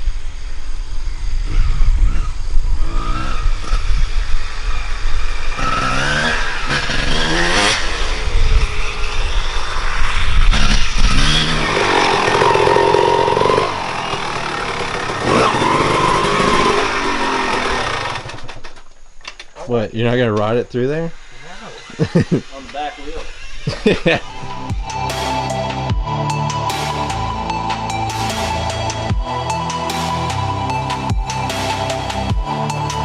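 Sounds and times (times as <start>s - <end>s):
wind buffeting microphone: 0.0s - 5.5s, 7.8s - 11.3s
dirt bike engine revving: 1.4s - 18.8s, 20.9s - 33.0s.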